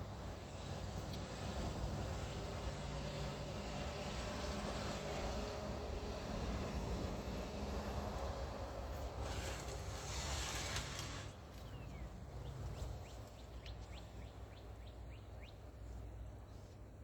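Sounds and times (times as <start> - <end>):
passing vehicle: 0.0 - 13.4.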